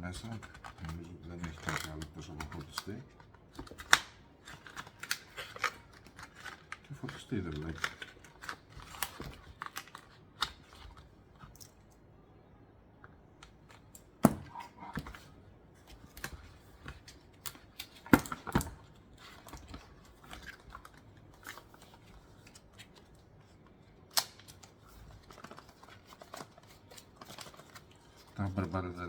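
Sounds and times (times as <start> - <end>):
cardboard packaging rustling: 0.0 - 11.6, 13.7 - 29.0.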